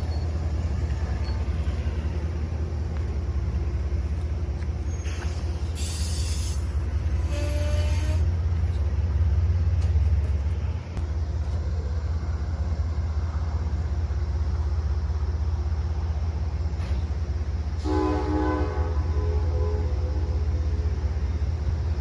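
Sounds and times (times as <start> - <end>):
train rumbling past: 0.0 - 22.0
short horn-like tones: 7.2 - 8.2.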